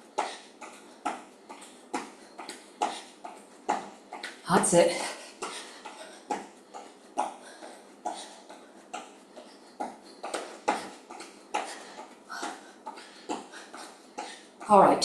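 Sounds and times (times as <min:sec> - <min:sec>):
hard exhaled breaths: 0:05.0 - 0:14.6.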